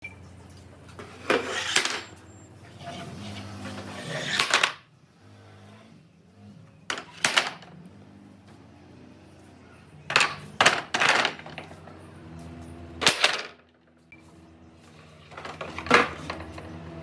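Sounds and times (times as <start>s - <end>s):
wood and tools clattering: 0.5s - 4.8s, 6.9s - 7.8s, 9.5s - 17.0s.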